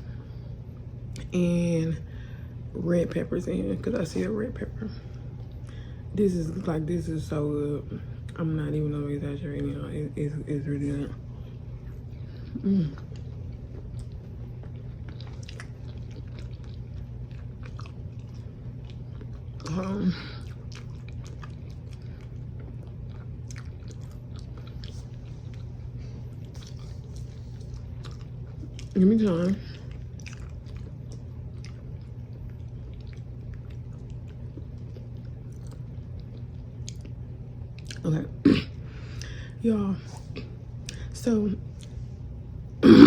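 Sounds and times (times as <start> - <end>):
steady low hum: 0.0 - 43.0
close chewing with mouth clicks: 11.8 - 38.0.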